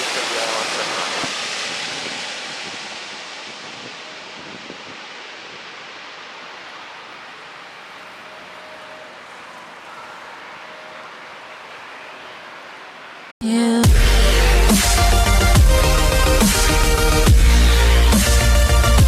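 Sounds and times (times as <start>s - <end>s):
jet aircraft rumble: 0.0s - 7.4s.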